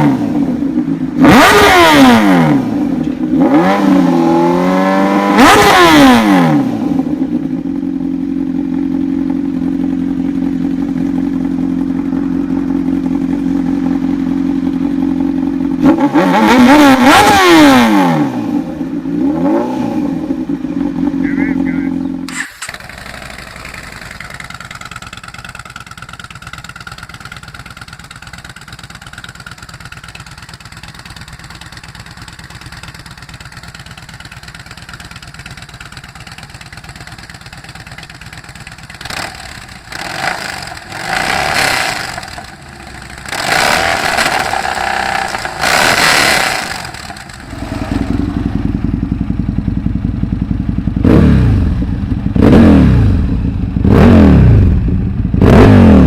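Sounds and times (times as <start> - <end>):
deeper engine revving: 0.0 - 7.6, 10.6 - 24.5, 39.0 - 56.0
motorcycle engine idling and revving: 0.0 - 56.0.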